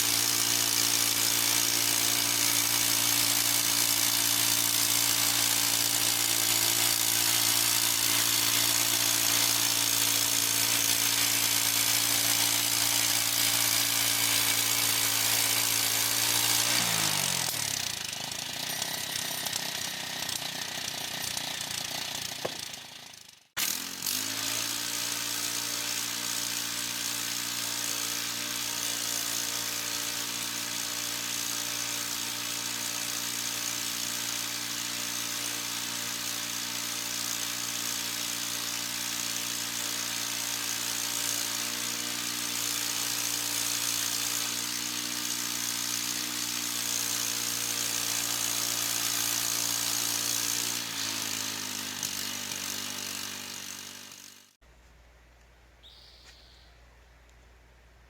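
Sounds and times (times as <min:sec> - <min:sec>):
sawmill gasoline engine running: 0:00.0 - 0:54.6
band blade cutting log hiss: 0:04.0 - 0:17.7, 0:55.8 - 0:56.7.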